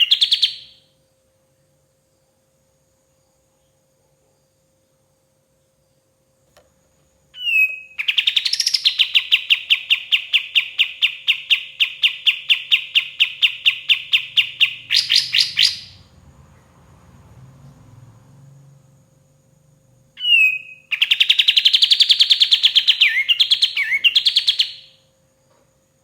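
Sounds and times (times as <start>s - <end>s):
songbird chipping song: 0.0s - 0.8s, 7.4s - 16.1s, 20.2s - 25.0s.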